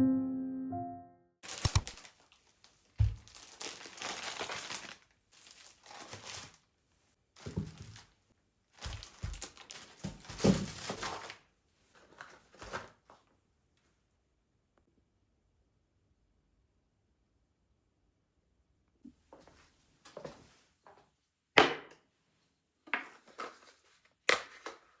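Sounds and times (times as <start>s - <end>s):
packaging crinkling and rustling: 1.4s - 6.7s, 7.4s - 8.2s, 8.8s - 13.3s.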